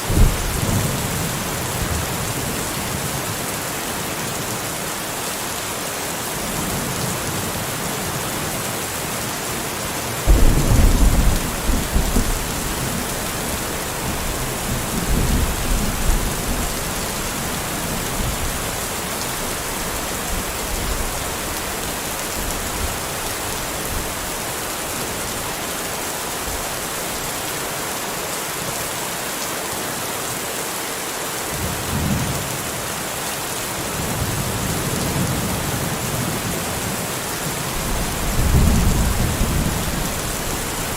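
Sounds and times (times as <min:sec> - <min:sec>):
steady rain: 0:00.0 - 0:40.9
thunder rumbling: 0:00.1 - 0:02.7, 0:10.3 - 0:21.9, 0:37.7 - 0:40.9.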